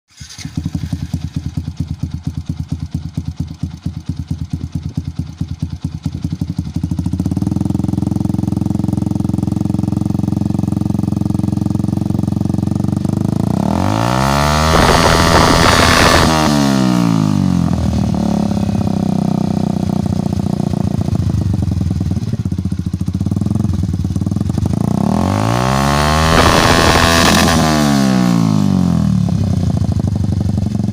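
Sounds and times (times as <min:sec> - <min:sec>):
motorcycle engine idling: 0:00.2 - 0:14.0, 0:14.7 - 0:16.2, 0:17.1 - 0:25.1, 0:28.7 - 0:30.9
motorcycle throttle blips: 0:13.7 - 0:16.9, 0:26.1 - 0:28.3.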